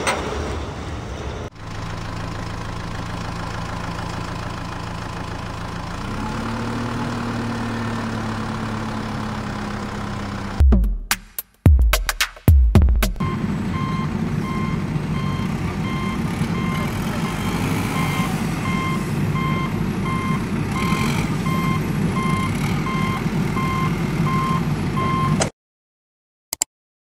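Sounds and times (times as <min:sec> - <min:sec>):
engine rumble: 0:00.0 - 0:11.1, 0:12.8 - 0:25.5
truck reversing alarm beeping: 0:13.2 - 0:25.4.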